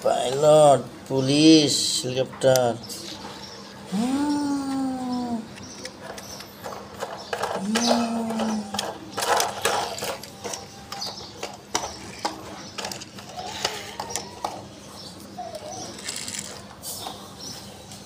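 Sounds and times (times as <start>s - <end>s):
plastic toy vehicles rattling: 5.6s - 17.7s.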